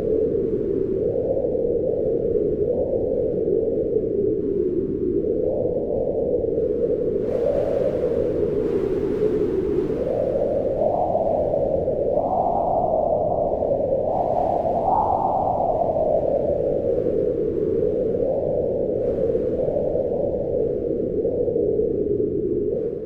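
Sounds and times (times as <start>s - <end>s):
wind howling: 0.0s - 23.0s.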